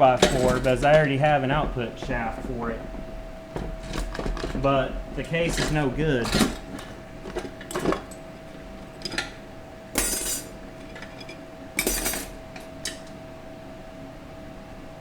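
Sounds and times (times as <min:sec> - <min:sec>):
metal parts clinking on a bench: 0:00.1 - 0:02.5, 0:03.6 - 0:08.2, 0:08.8 - 0:09.4, 0:10.0 - 0:13.1.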